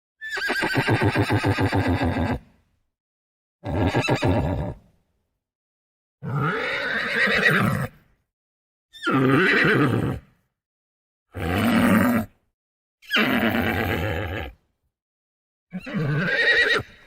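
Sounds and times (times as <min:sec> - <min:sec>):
horse neighing: 0:00.3 - 0:02.4, 0:03.6 - 0:04.8, 0:06.2 - 0:08.0, 0:09.0 - 0:10.2, 0:13.1 - 0:14.6, 0:15.8 - 0:17.0.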